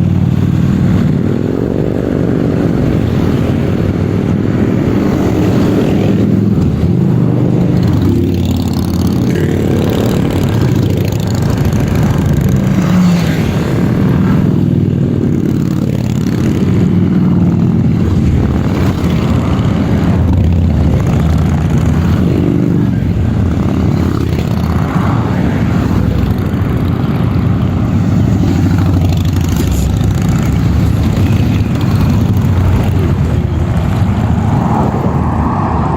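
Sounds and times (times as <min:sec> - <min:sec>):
motorcycle engines revving: 0:00.0 - 0:35.9.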